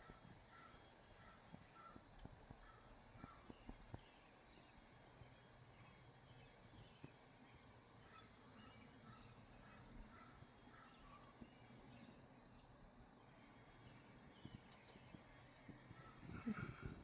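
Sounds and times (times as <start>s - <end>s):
soft clicks: 14.5s - 15.8s.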